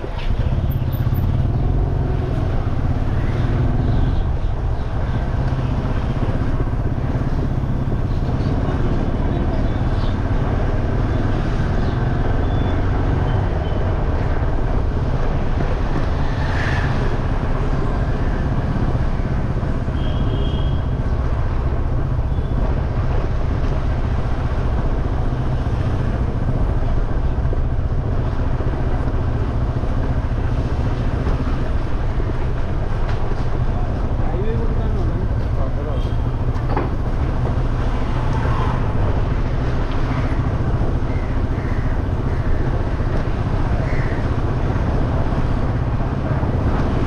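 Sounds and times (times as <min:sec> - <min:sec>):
motorcycle engine and road noise: 0:00.0 - 0:47.0
wind rumble on microphone: 0:36.2 - 0:47.0.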